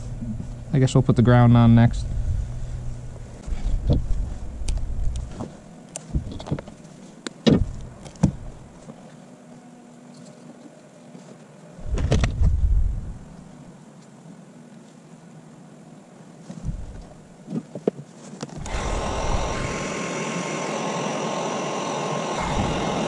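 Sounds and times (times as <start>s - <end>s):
low rumble: 1.5s - 5.5s, 11.8s - 13.5s, 16.7s - 17.1s.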